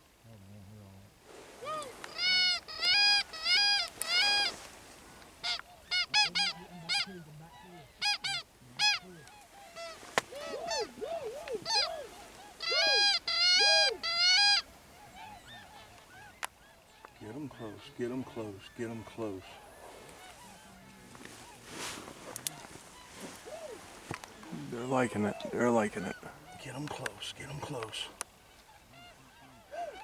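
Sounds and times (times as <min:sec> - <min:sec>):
faint swan calls: 0:01.2 - 0:30.0
swan call whooping honks: 0:01.4 - 0:16.4, 0:28.8 - 0:30.0.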